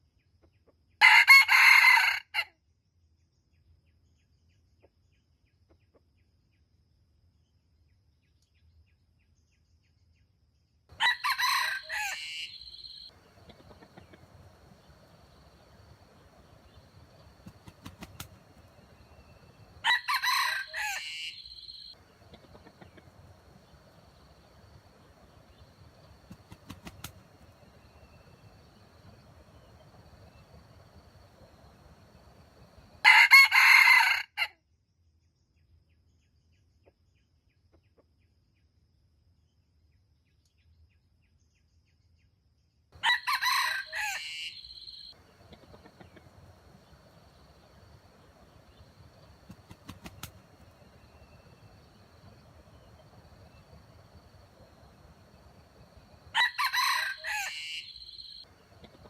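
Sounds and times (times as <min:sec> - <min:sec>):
rooster crowing: 0:01.0 - 0:02.5, 0:10.9 - 0:34.5, 0:43.0 - 0:59.0.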